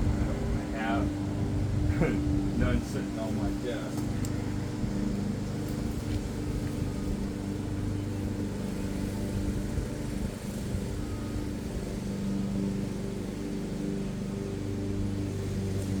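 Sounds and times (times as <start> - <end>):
machine humming: 0.0 - 16.0.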